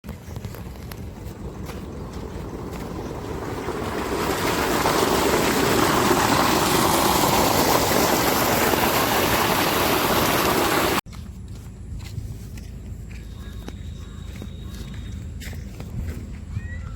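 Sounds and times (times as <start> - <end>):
low rumble: 0.1 - 7.6
loud rushing water noise: 2.4 - 11.0.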